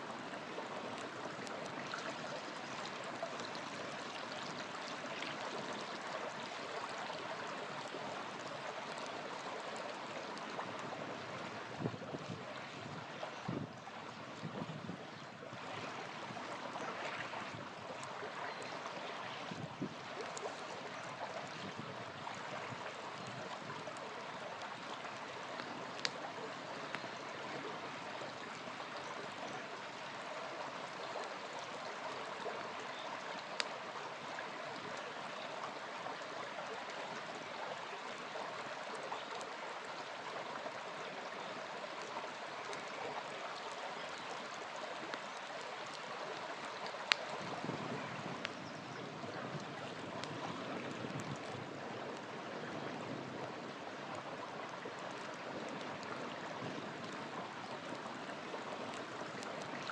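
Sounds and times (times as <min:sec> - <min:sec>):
river flowing over stones: 0:00.0 - 0:59.9
campfire pops: 0:25.4 - 0:27.1, 0:45.1 - 0:48.6, 0:49.6 - 0:51.4.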